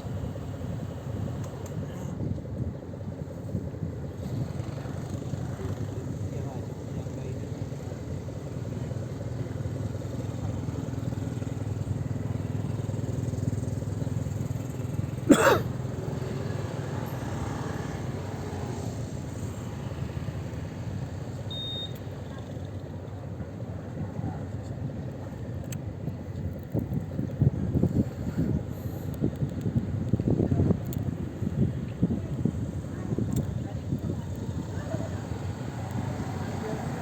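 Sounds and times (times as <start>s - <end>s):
boat engines rumbling: 0.0s - 37.0s
short high beep: 21.5s - 22.0s.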